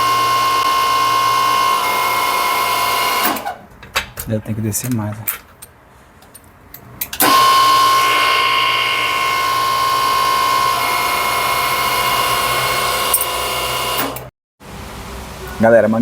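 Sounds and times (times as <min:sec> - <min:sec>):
crimping machine motor whining: 0:00.0 - 0:03.6, 0:07.2 - 0:14.3.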